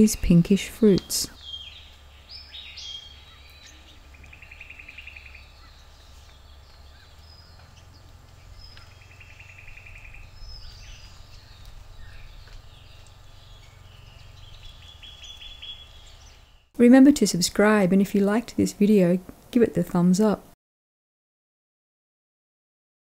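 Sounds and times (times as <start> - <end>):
steady low rumble: 0.0 - 18.8
birds whistling and chirping: 1.0 - 16.7.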